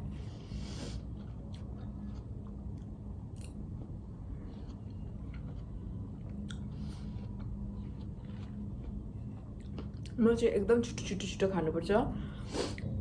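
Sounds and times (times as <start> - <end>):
person chewing food: 0.0 - 10.2
steady low hum: 0.0 - 13.0.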